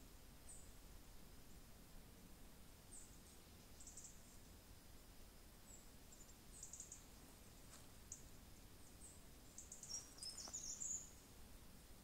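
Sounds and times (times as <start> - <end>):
small birds chirping: 0.4 - 0.8, 2.8 - 12.0.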